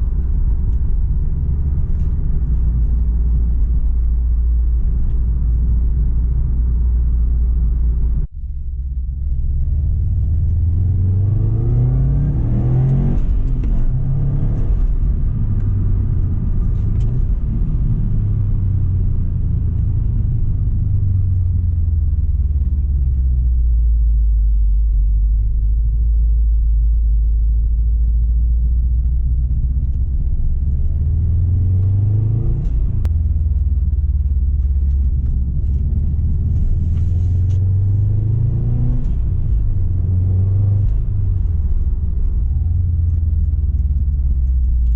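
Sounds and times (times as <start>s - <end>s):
car engine revving: 9.3s - 23.6s, 29.3s - 44.9s.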